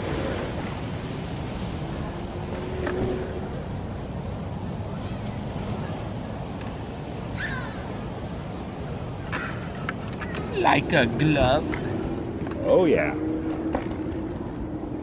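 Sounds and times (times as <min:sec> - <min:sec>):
wind and road noise on microphone: 0:00.0 - 0:15.0.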